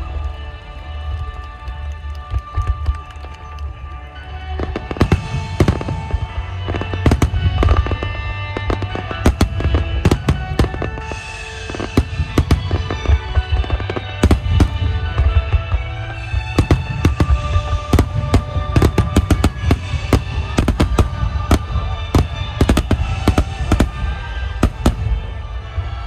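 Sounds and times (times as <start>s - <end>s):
music with sustained tones: 0.0s - 26.0s
firework shells bursting: 5.0s - 8.0s, 9.2s - 15.2s, 16.2s - 25.4s.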